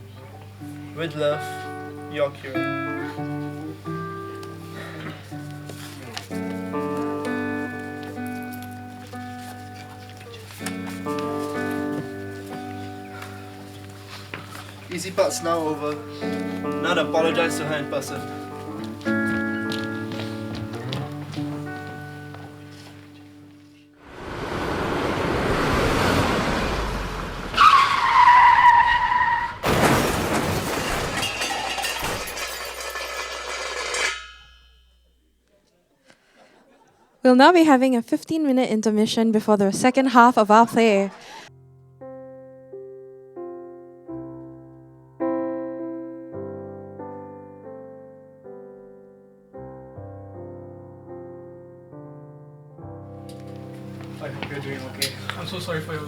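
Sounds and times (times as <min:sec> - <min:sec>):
slow solo piano music: 0:00.4 - 0:24.0, 0:41.5 - 0:56.0
car approaching: 0:24.0 - 0:29.5
loud car crash: 0:24.2 - 0:34.5
tyres screeching: 0:27.5 - 0:29.6.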